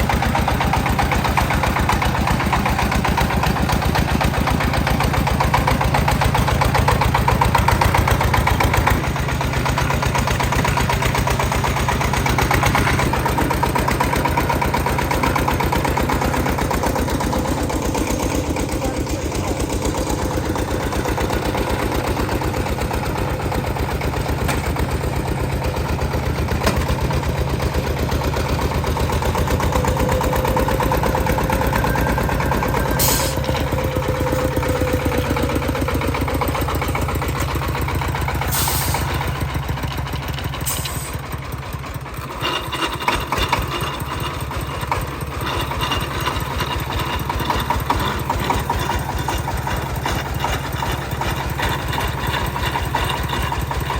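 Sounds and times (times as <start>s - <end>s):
tractor engine running: 0.0s - 53.9s.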